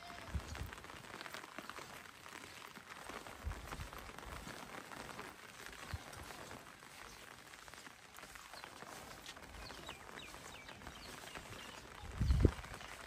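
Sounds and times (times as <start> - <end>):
footsteps on a wet path: 0.0 - 13.0
light rain hissing: 0.0 - 13.0.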